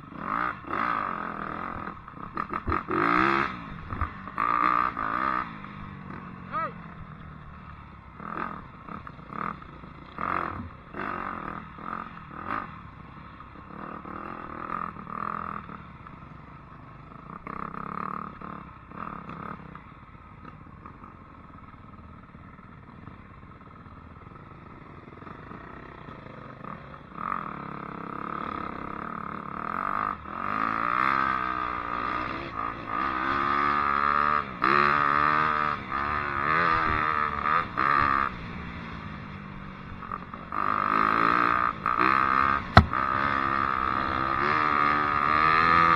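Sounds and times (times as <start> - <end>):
dirt bike engine revving: 42.8 - 43.0.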